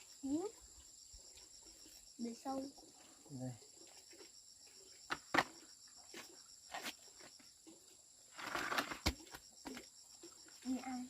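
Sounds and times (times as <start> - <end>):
insects chirping: 0.0 - 11.0
rustle: 0.0 - 11.0.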